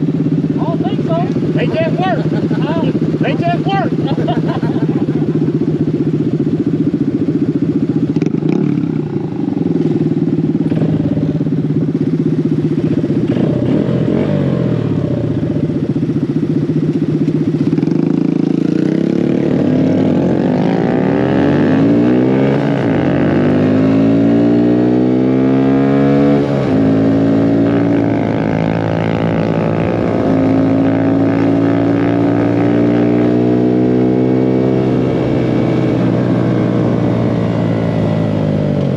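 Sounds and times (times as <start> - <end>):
mini bike engine running: 0.0 - 14.5.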